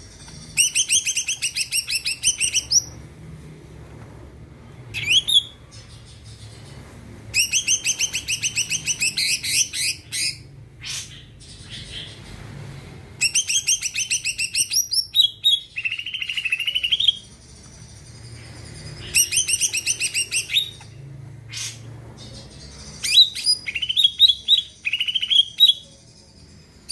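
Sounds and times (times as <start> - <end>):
bird chattering song: 0.0 - 3.0, 7.4 - 12.2, 13.2 - 26.9.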